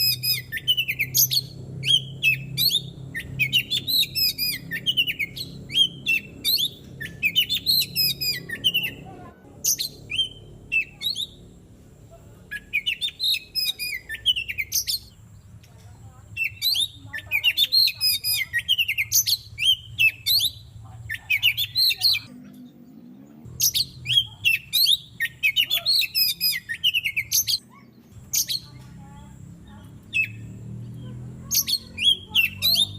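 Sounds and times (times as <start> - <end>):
bird chirping and whistling: 0.0 - 9.0, 9.6 - 11.4, 12.5 - 15.2, 16.4 - 22.3, 23.5 - 28.8, 30.0 - 32.9.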